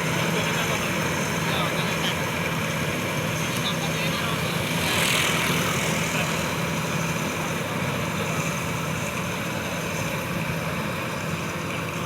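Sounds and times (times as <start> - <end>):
farm machinery engine droning: 0.0 - 12.0.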